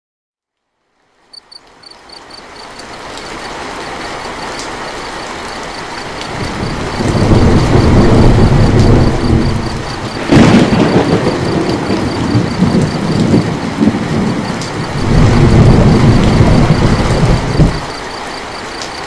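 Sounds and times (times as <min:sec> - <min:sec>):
heavy rain: 0:00.6 - 0:19.0
rolling thunder: 0:06.3 - 0:18.0.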